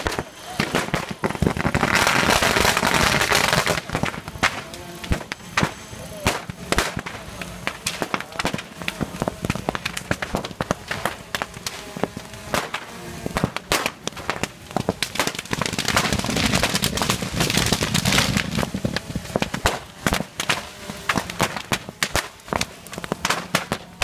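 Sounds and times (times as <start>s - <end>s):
firecrackers popping: 0.0s - 24.0s.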